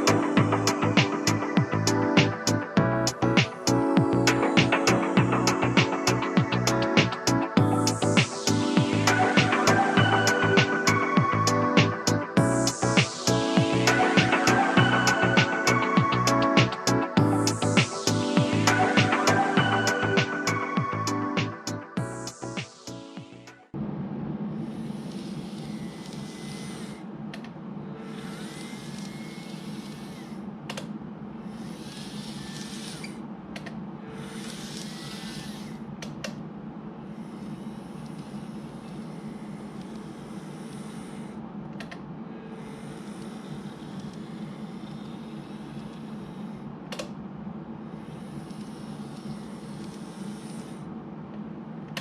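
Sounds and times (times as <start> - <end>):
model train motor hum: 24.6 - 27.0, 28.0 - 30.4, 31.4 - 33.2, 34.2 - 35.8, 37.0 - 41.4, 42.5 - 46.7, 47.9 - 50.9.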